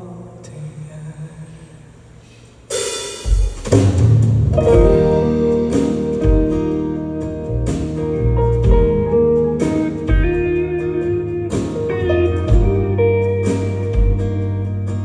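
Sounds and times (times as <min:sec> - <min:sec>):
drum hits: 0:02.8 - 0:10.8, 0:11.5 - 0:14.6
bass guitar: 0:03.6 - 0:15.0
lead guitar melody: 0:04.5 - 0:15.0.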